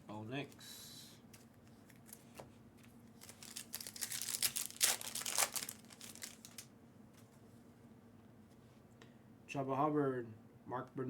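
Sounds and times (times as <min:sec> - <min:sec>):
foil wrapper crinkling: 0:03.2 - 0:06.7.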